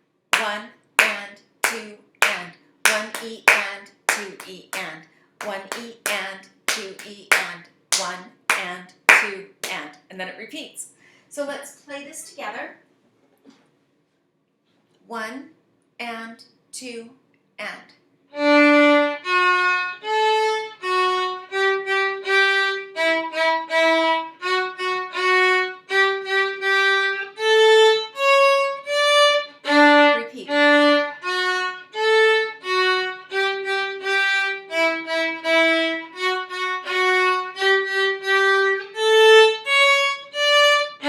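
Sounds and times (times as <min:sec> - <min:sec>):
violin playing bowed notes: 0:18.4 - 0:41.0.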